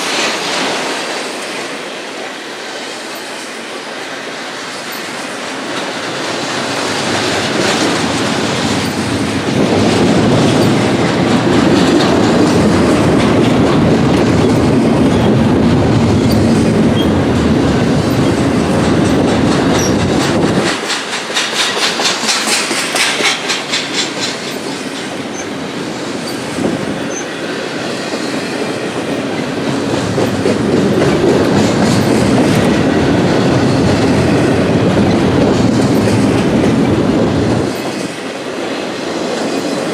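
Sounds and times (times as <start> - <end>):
freight train wheels rumbling: 0.0 - 39.9
train wheels clickety-clack: 0.0 - 39.9.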